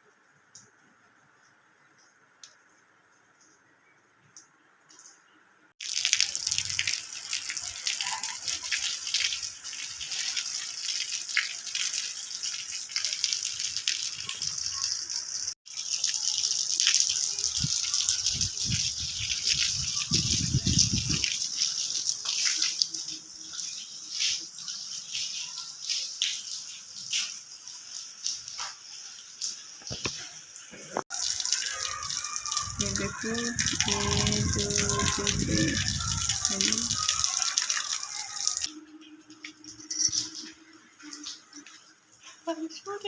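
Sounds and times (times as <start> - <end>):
heavy rain falling: 29.4 - 38.7.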